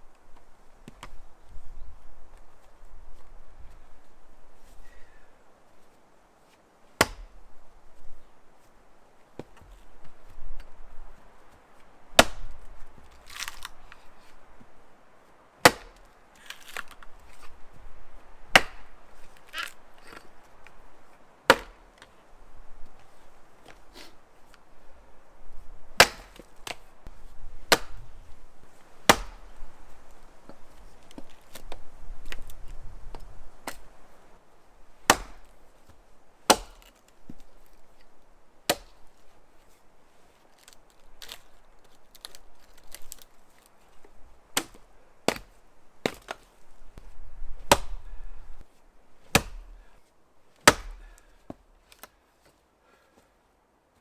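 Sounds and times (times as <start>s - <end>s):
axe chopping into wood: 7.0s - 7.4s, 12.1s - 14.0s, 15.6s - 17.6s, 18.5s - 20.3s, 21.5s - 22.2s, 26.0s - 28.4s, 29.0s - 29.6s, 35.0s - 37.5s, 38.7s - 39.1s, 44.5s - 48.3s, 49.2s - 49.9s, 50.6s - 52.1s.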